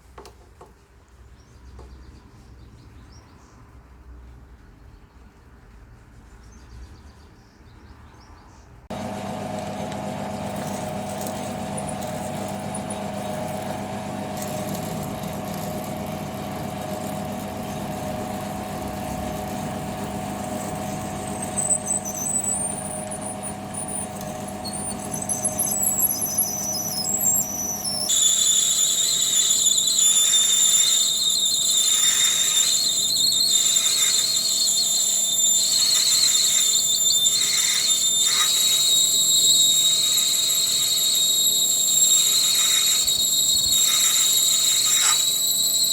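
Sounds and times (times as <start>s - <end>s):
machine tool motor running: 8.9s - 45.9s
cutting tool squealing on metal: 10.4s - 45.9s.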